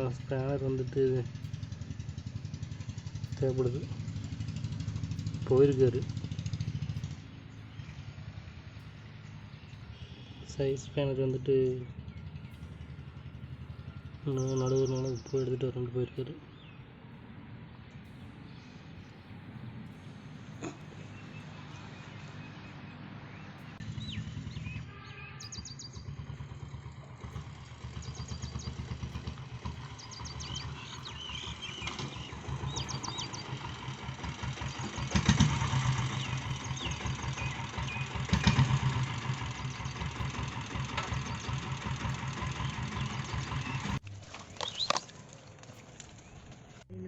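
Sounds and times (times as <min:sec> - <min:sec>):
birds chirping: 0:00.0 - 0:47.0
motorcycle engine running: 0:00.0 - 0:47.0.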